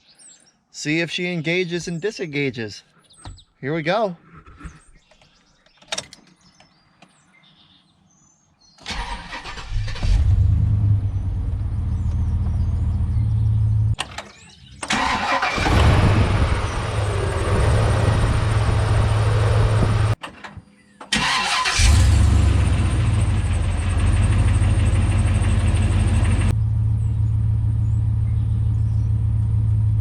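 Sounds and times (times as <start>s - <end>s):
car engine starting and idling: 8.8s - 20.2s, 21.1s - 30.0s.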